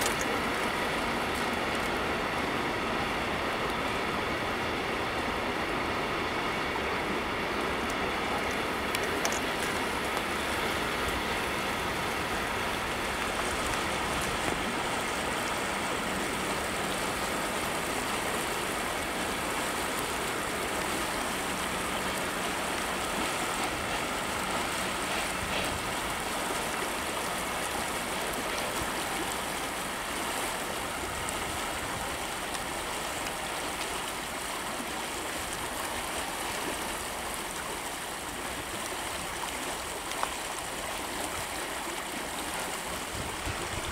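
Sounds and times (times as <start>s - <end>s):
freight train wagons rolling: 21.8s - 29.1s.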